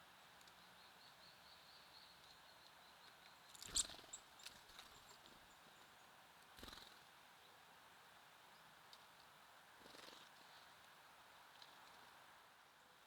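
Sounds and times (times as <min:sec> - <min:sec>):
small birds chirping: 0:00.4 - 0:07.0.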